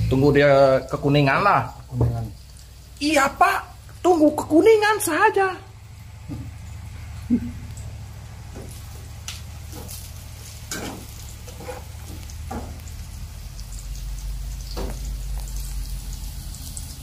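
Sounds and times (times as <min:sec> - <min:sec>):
vegetables sizzling in oil: 0:00.0 - 0:17.0
steady low hum: 0:01.7 - 0:17.0
spatula scraping and knocking pan: 0:09.6 - 0:12.9.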